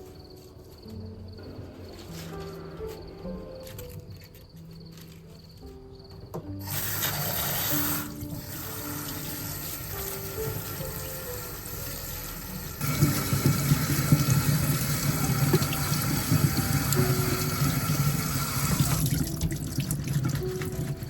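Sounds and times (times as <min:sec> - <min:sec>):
tap water running into sink: 0:06.6 - 0:21.0.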